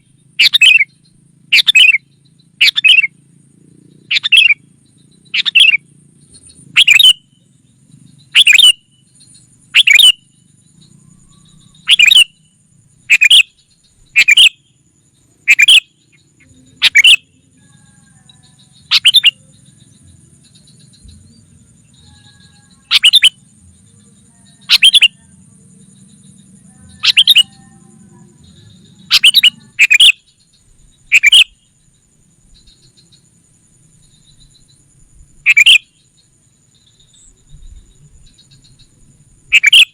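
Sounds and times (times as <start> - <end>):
bulbul two-note calls: 6.8 - 7.3, 18.8 - 19.5, 24.6 - 25.2, 26.9 - 27.9.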